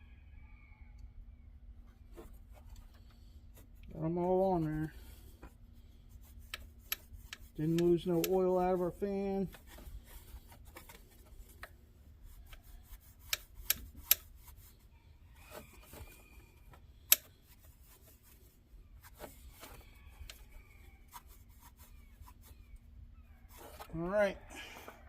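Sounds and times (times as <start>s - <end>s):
light scraping and rubbing: 1.9s - 25.0s
sharp metallic clicks: 17.1s - 17.3s.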